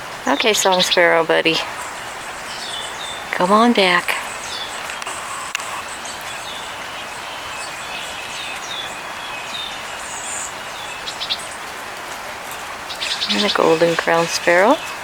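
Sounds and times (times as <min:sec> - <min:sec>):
songbird call notes: 0:00.0 - 0:11.7, 0:12.8 - 0:15.0
background hiss: 0:00.0 - 0:15.0
high bird chirp: 0:12.9 - 0:15.0.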